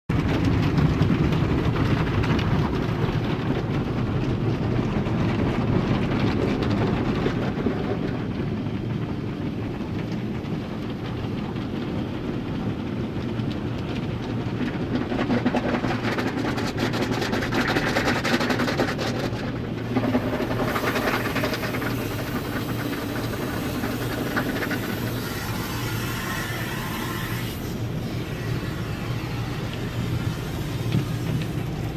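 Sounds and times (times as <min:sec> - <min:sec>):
car wash machinery rumble: 0:00.1 - 0:31.9
hissing water spray: 0:19.9 - 0:31.9.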